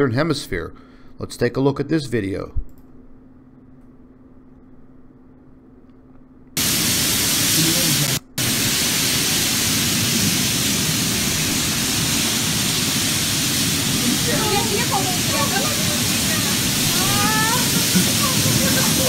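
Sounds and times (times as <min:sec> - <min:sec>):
faint hum: 0:00.0 - 0:19.0
floodwater rushing down street: 0:06.6 - 0:19.0.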